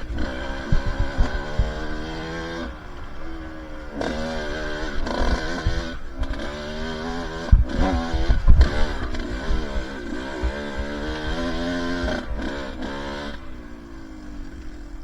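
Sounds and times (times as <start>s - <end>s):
short low thumps: 0.0s - 4.3s
dirt bike engine revving: 0.0s - 15.0s.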